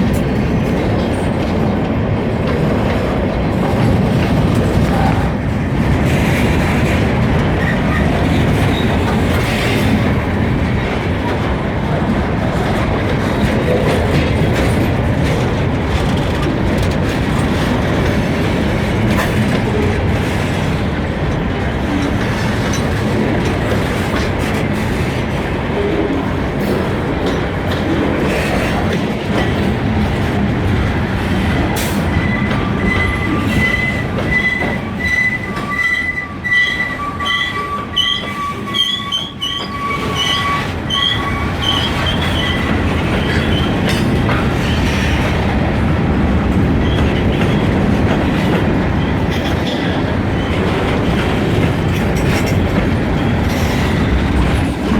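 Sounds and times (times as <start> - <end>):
freight train wheels clattering: 0.0 - 54.9
train wheels squealing: 7.6 - 9.9, 31.8 - 45.3.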